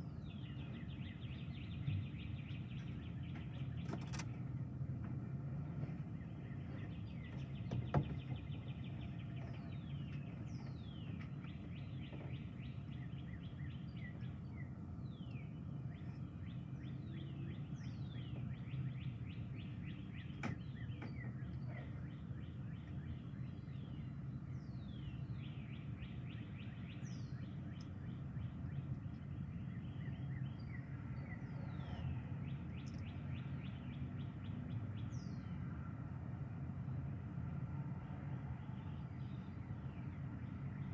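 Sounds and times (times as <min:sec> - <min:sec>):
low outdoor rumble: 0:00.0 - 0:40.9.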